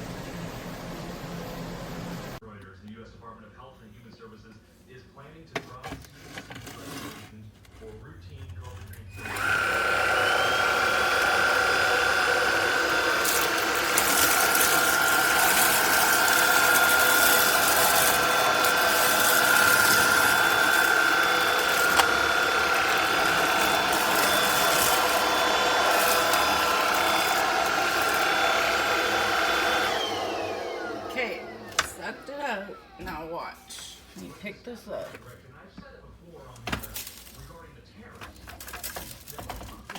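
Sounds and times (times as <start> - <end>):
vacuum motor whine: 0.0 - 2.4, 9.1 - 34.6.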